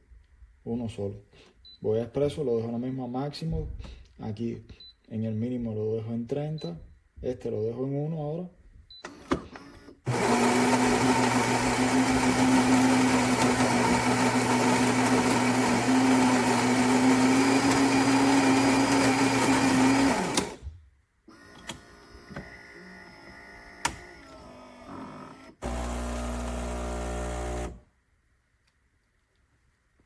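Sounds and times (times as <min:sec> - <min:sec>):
coffee grinder whirring: 0:10.1 - 0:20.6, 0:24.2 - 0:27.8.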